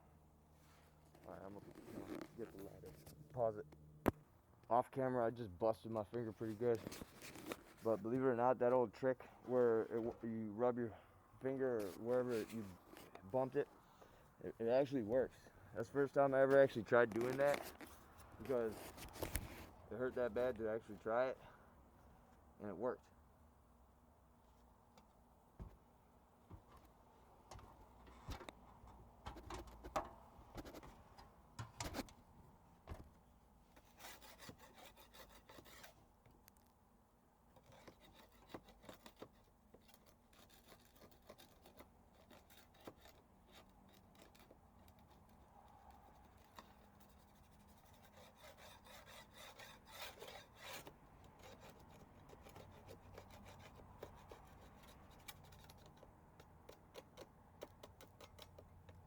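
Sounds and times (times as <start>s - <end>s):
paint scraper rasping on wood: 33.8s - 36.0s, 37.6s - 59.0s.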